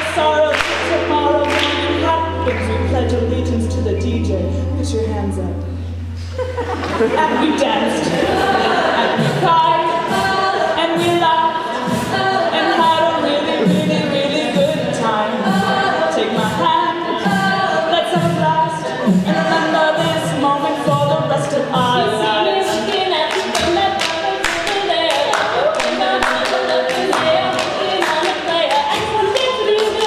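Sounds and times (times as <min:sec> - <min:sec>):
rapid sharp percussive hits: 0:00.0 - 0:03.7
group singing in harmony: 0:00.0 - 0:30.0
pulsing vocal bass line: 0:00.0 - 0:30.0.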